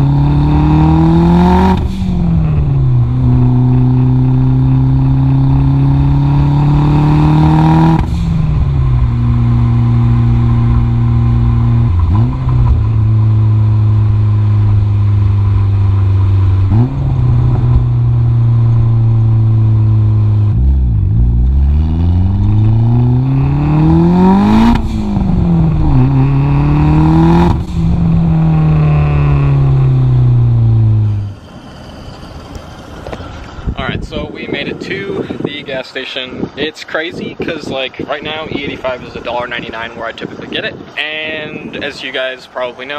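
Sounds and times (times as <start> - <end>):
turbocharged car engine accelerating: 0.0 - 34.1.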